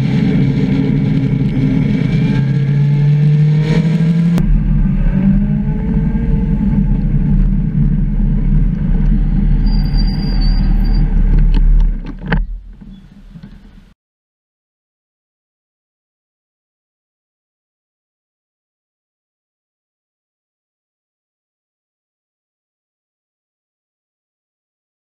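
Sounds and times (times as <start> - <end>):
motorcycle engine revving: 0.0 - 12.8
wind rush: 0.0 - 13.9.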